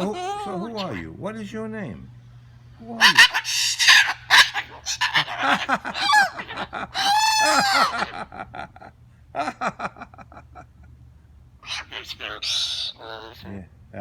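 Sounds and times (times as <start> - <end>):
bird calling: 0.0 - 1.2, 2.8 - 8.3, 11.6 - 13.7.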